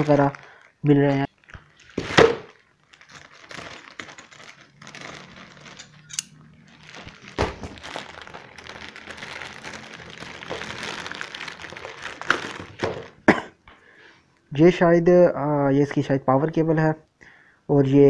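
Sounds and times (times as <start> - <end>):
plastic bags crinkling: 0.0 - 13.3.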